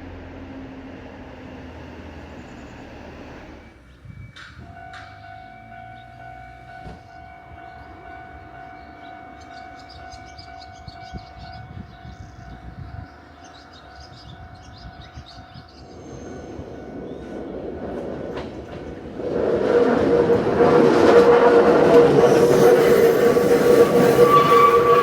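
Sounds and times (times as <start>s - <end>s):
train low rumble: 0.0s - 25.0s
high-pitched wheel squeal: 20.2s - 25.0s.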